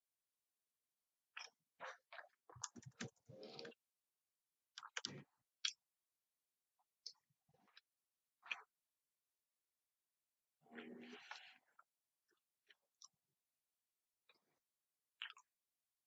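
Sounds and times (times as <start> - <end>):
eating clicks and chewing: 1.4 - 3.8, 4.8 - 5.8, 15.2 - 15.5.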